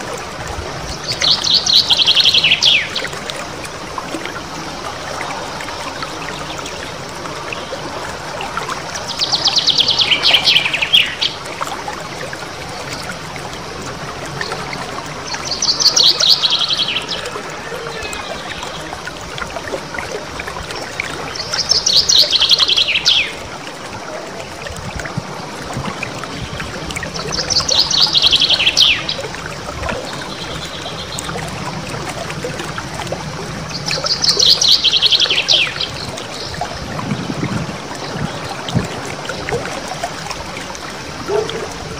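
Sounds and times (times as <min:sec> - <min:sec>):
water trickling: 0:00.0 - 0:41.9
songbird trilling: 0:27.3 - 0:29.2.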